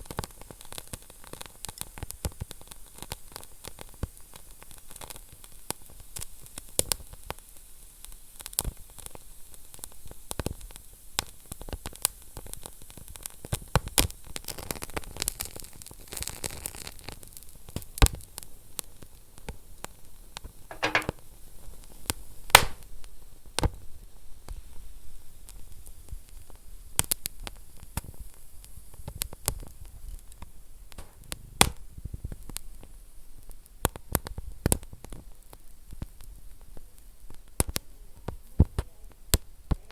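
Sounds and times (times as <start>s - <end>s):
soft hiss of fire: 0.0s - 21.1s, 21.9s - 39.9s
wood fire crackling and popping: 22.5s - 22.8s, 26.3s - 39.8s.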